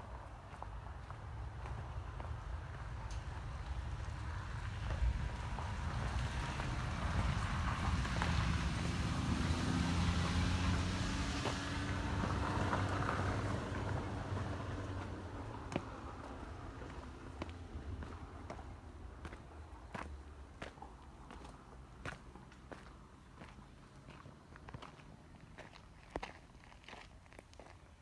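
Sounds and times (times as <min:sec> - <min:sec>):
low wind rumble: 0:00.0 - 0:21.9
vehicle engine passing: 0:01.2 - 0:20.1.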